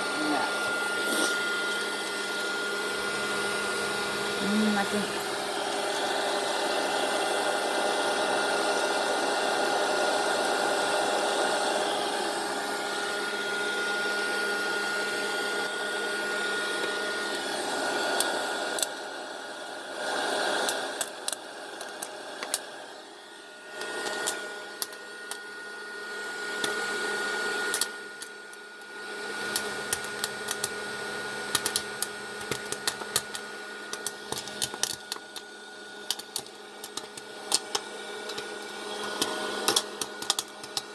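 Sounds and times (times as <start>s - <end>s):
popcorn popper motor hum: 0.0s - 40.9s
popcorn kernels popping: 16.8s - 19.7s, 20.5s - 22.8s, 23.7s - 25.5s, 26.2s - 27.0s, 27.6s - 40.9s.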